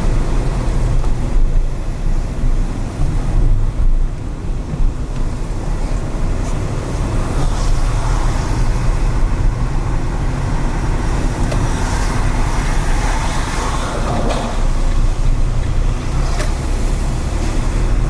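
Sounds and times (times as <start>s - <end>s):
car engine and road rumble: 0.0s - 18.0s
tyre hiss on wet road: 5.6s - 18.0s.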